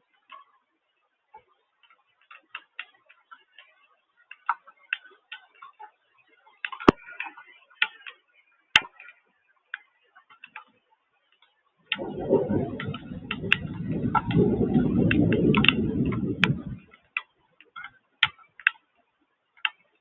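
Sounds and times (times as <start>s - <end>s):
water drops tapping hard surface: 11.9s - 16.8s.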